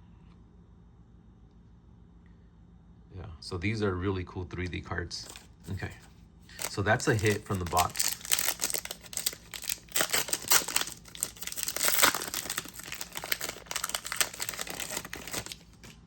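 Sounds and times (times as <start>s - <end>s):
plastic wrapper crinkling and tearing: 5.2s - 16.0s.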